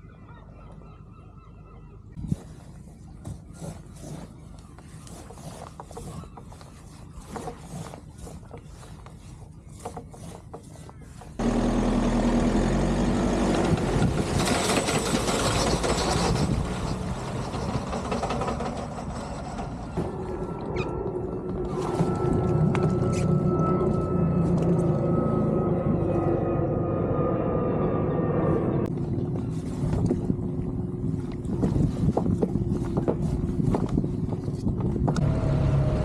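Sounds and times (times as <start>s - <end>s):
outboard motor running: 2.2s - 18.9s, 28.9s - 36.0s.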